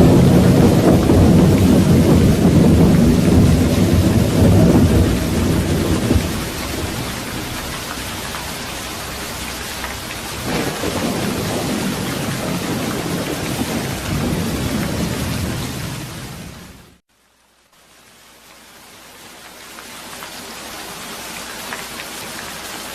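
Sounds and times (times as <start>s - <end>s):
heavy rain hissing: 0.0s - 17.0s
rolling thunder: 0.0s - 17.0s.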